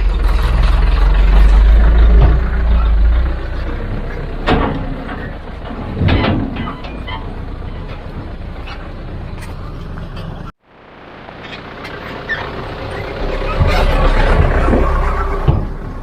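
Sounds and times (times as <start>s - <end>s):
heavy vehicle engine rumbling: 0.0s - 16.0s.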